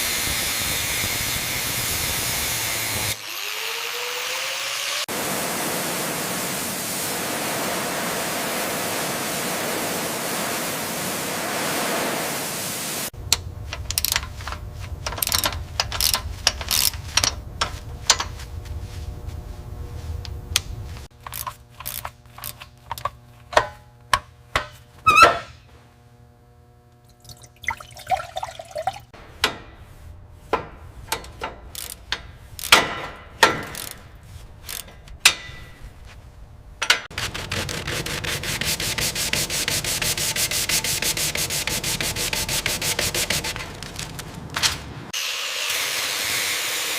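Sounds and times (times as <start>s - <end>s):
spraying hiss: 5.1s - 13.1s
tools clicking on metal: 13.3s - 18.3s, 31.1s - 35.6s
short squeal: 25.1s - 25.6s.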